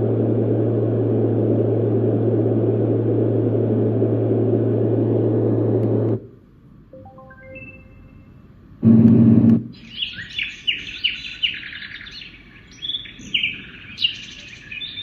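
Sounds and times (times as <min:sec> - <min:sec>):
white noise machine rushing: 0:00.0 - 0:06.3
low hum: 0:00.0 - 0:09.7.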